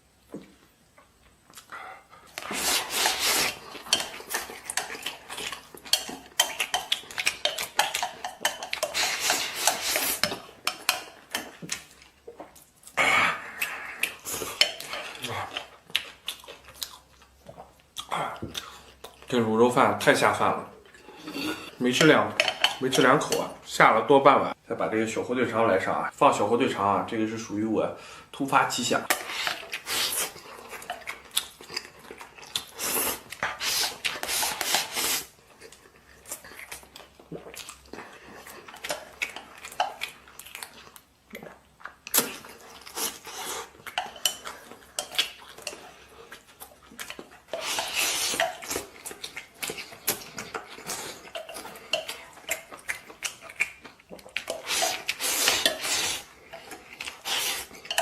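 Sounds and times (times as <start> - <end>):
chewing: 1.2 - 19.4, 29.1 - 58.0
spoon scraping a bowl: 2.4 - 11.2, 42.9 - 46.0, 47.5 - 48.8, 54.5 - 58.0.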